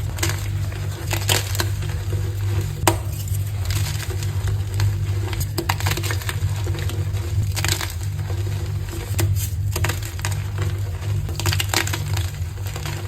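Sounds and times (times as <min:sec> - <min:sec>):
steady low hum: 0:00.0 - 0:12.8
chalk blocks crunching: 0:02.9 - 0:03.6.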